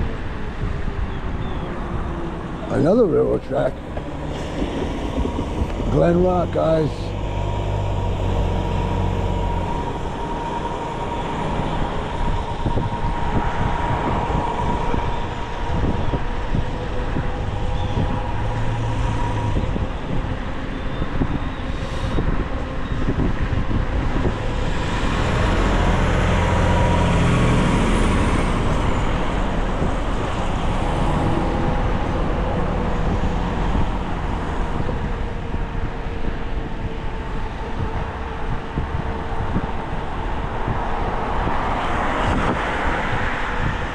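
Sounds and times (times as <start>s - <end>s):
road and wind noise: 0.0s - 43.9s
vehicle passing: 1.8s - 20.3s, 24.3s - 35.1s.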